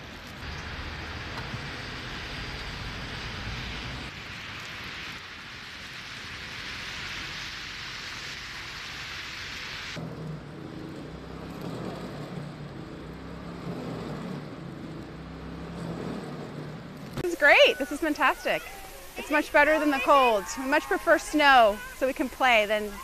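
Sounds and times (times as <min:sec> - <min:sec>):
outdoor hissing noise: 0:00.0 - 0:23.0
faint engine hum: 0:10.0 - 0:23.0.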